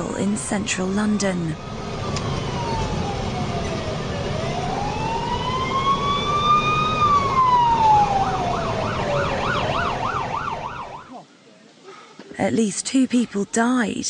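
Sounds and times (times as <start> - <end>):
low rumble of traffic: 0.0 - 14.0
emergency siren wailing and yelping: 0.5 - 11.1.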